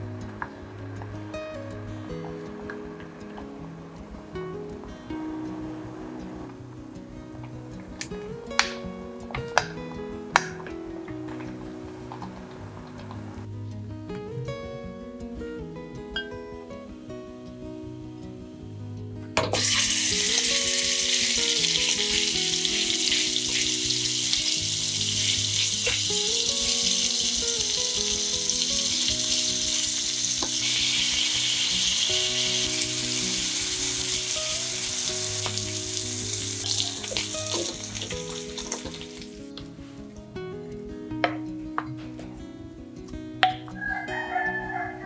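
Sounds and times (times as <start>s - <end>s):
meat sizzling in hot oil: 19.5s - 39.4s.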